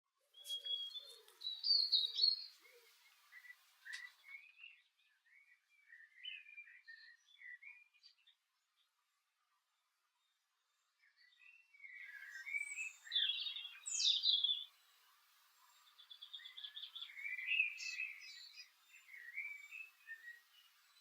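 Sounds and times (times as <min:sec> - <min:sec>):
songbirds singing: 0:00.3 - 0:21.0
bird trill: 0:00.4 - 0:04.8, 0:12.0 - 0:14.8.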